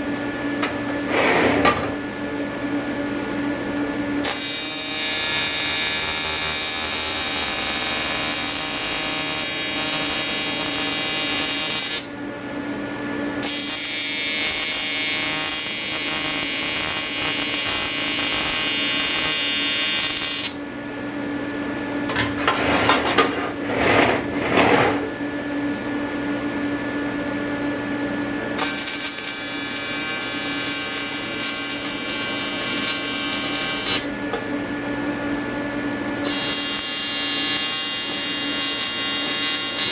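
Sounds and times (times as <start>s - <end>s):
welding arc buzzing: 4.2s - 12.2s, 13.4s - 20.7s, 28.6s - 34.2s, 36.2s - 39.9s
scratchy welding burst: 4.3s - 12.1s, 13.4s - 20.6s, 28.6s - 34.1s, 36.3s - 39.9s.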